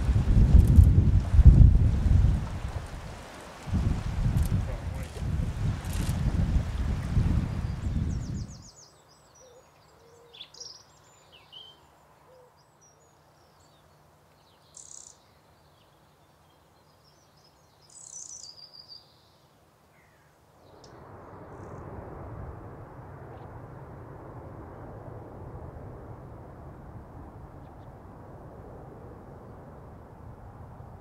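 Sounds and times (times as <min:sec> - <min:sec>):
steady rushing noise: 0:00.0 - 0:08.6, 0:20.7 - 0:31.0
small birds chirping: 0:07.5 - 0:20.9.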